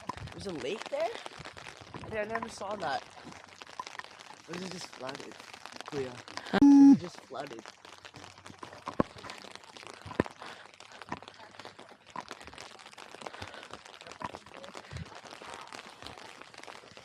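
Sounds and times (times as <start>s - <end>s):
rain tapping on umbrella: 0.0s - 17.0s.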